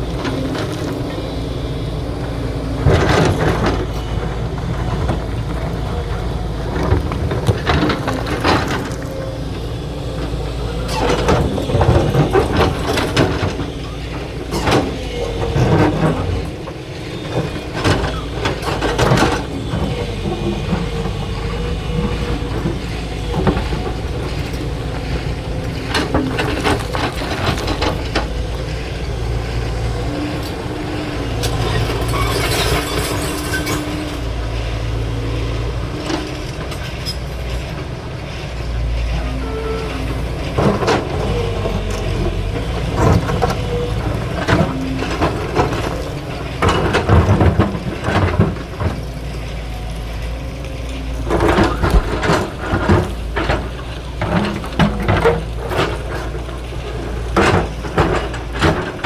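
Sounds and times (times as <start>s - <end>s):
excavator diesel engine running: 0.0s - 59.0s
metallic clanks and knocks: 51.2s - 59.0s.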